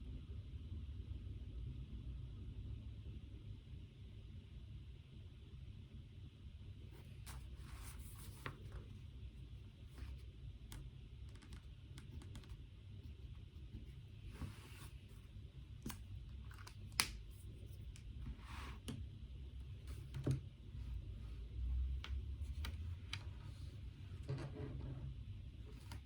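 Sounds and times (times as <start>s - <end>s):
low room hum: 0.0s - 26.0s
small clicks and taps: 10.0s - 12.6s.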